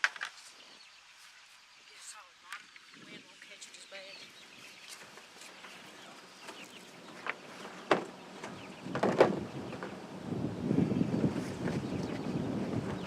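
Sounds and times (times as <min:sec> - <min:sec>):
wind buffeting microphone: 0:05.9 - 0:13.0.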